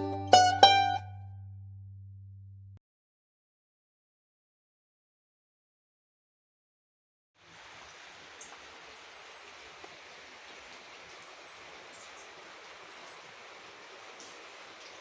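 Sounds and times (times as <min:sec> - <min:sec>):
faint outdoor hiss: 0:07.4 - 0:15.0
small bird chirping: 0:08.4 - 0:09.5, 0:10.7 - 0:13.3.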